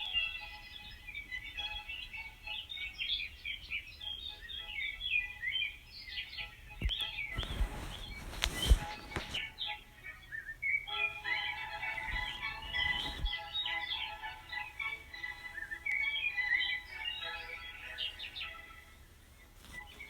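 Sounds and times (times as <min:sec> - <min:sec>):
small birds chirping: 0:00.0 - 0:20.0
rustling with sharp knocks: 0:06.8 - 0:09.6, 0:11.8 - 0:13.7, 0:19.6 - 0:20.0.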